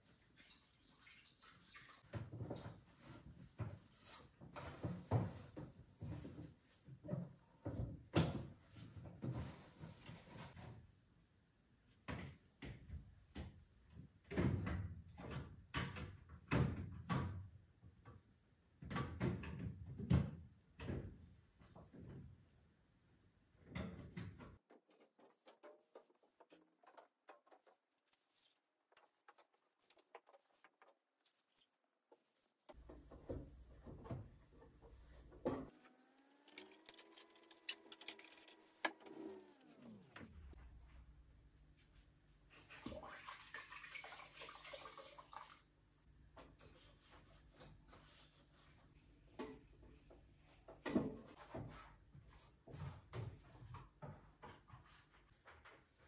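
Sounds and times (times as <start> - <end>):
knocks and clatters: 24.4 - 31.2.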